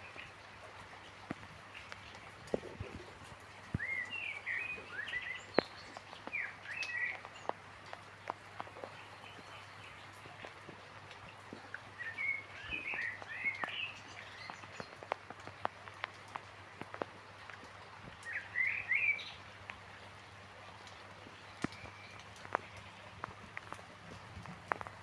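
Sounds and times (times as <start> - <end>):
raindrops ticking: 0.0 - 25.0
songbird twittering: 3.7 - 7.2.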